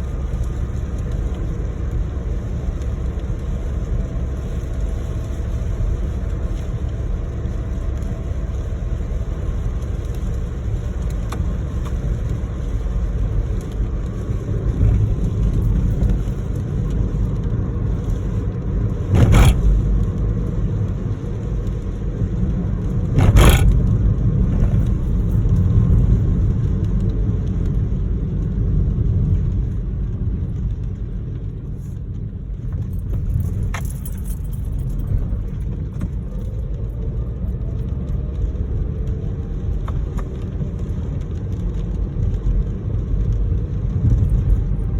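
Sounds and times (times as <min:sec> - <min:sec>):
car driving rumble: 0:00.0 - 0:44.9
loud swishes: 0:19.1 - 0:19.9, 0:23.2 - 0:23.9.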